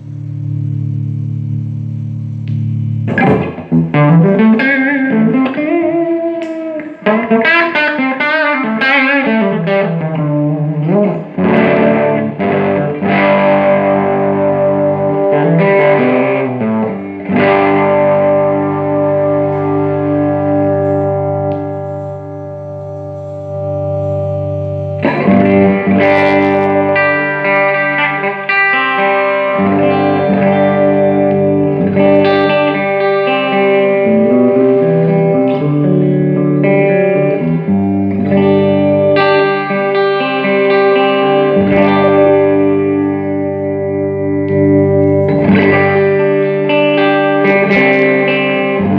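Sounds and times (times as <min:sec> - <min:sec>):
electric guitar through tube amp: 0:00.0 - 0:48.9.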